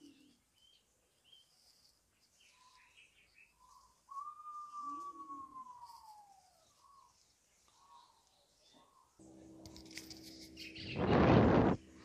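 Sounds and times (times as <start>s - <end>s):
faint high chirps: 0.0s - 9.4s
soft whistled notes: 3.5s - 7.2s
bird long falling whistle: 4.1s - 7.0s.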